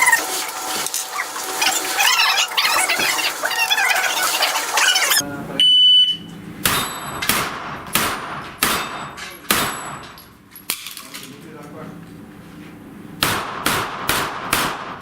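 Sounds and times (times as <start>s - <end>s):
shot timer beep: 5.6s - 7.2s
gunshots hitting steel plates: 6.6s - 11.0s, 13.2s - 15.0s.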